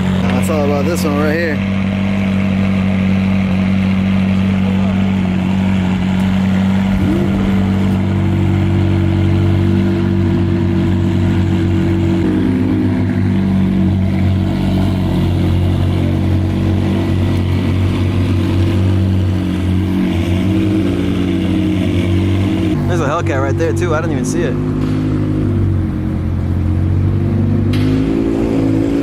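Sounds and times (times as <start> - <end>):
car engine idling with loud exhaust: 0.0 - 29.0.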